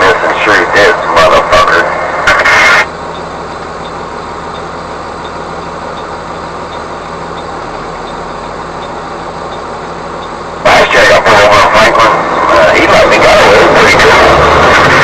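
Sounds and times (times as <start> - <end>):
diesel truck engine humming: 0.0 - 15.0
faint repeating tick: 6.7 - 10.4.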